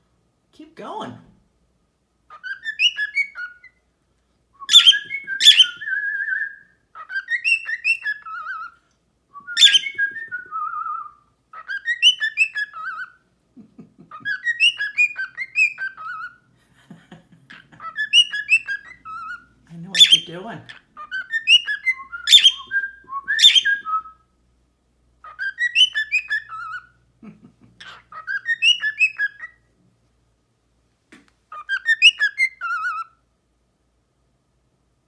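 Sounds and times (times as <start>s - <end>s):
bird whistling and chirping: 2.3s - 3.8s, 4.6s - 8.8s, 9.4s - 13.2s, 14.2s - 16.4s, 17.8s - 20.4s, 21.0s - 24.2s, 25.2s - 27.0s, 27.8s - 29.6s, 31.5s - 33.2s.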